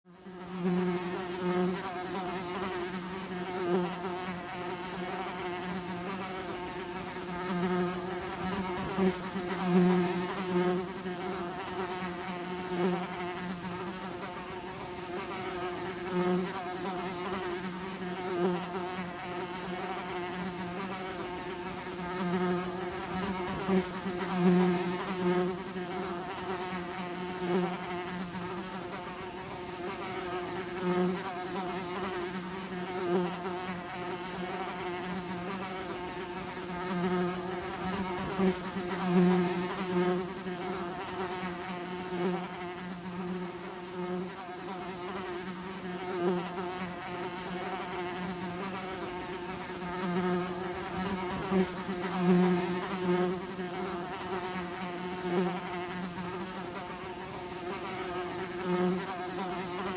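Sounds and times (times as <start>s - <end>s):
bees buzzing: 0.2s - 59.9s.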